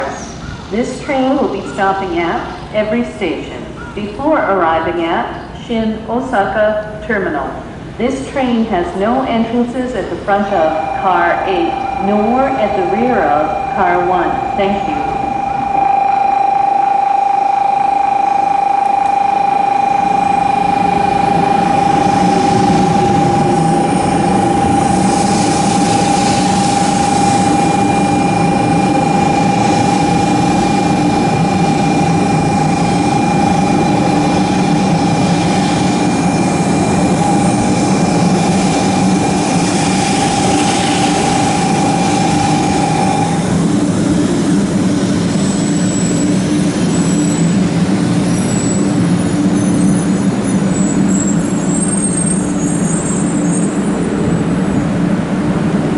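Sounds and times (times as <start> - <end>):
train running and wheel noise: 0.0 - 55.9
steady high tone: 9.0 - 55.4
low motor tones: 10.0 - 51.6.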